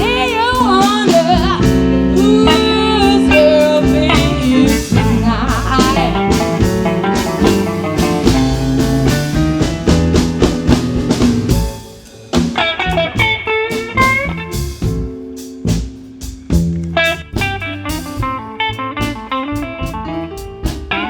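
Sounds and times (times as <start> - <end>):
blues band playing: 0.0 - 21.0
drum hits: 0.0 - 21.0
single-note guitar phrases: 1.9 - 7.2.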